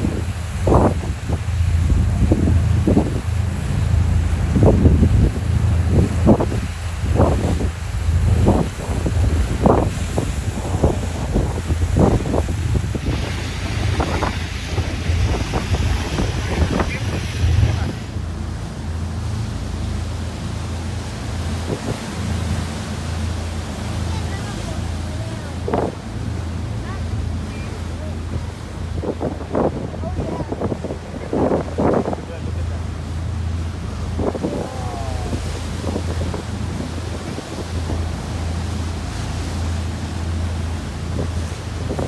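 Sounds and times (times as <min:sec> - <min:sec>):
boat engine drone: 0:00.0 - 0:42.0
water noise: 0:00.0 - 0:42.0
wind buffeting microphone: 0:00.0 - 0:42.0.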